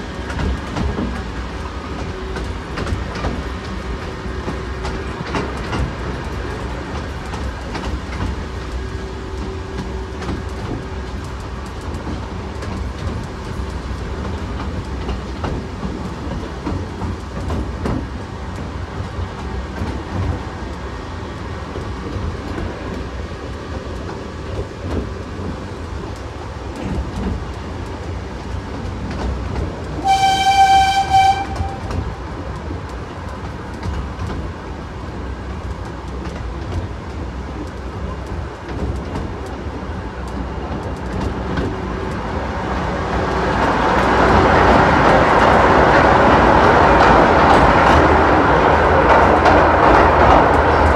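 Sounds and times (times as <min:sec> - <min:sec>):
high train toot: 0:30.0 - 0:32.2.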